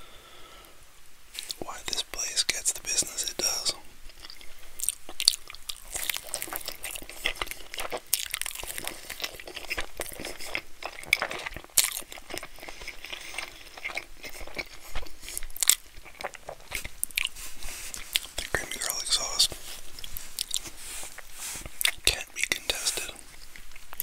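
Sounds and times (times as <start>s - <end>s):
chewing mouth clicks and smacks: 4.1s - 17.3s, 20.0s - 24.0s.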